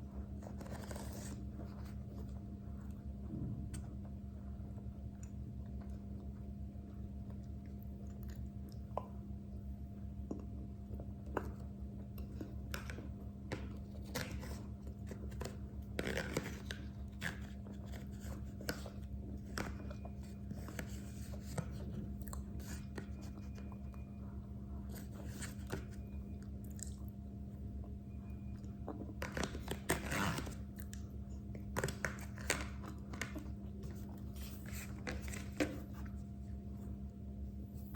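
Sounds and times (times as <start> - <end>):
steady hum: 0.0 - 37.9
person chewing food: 10.3 - 24.2, 24.8 - 27.2.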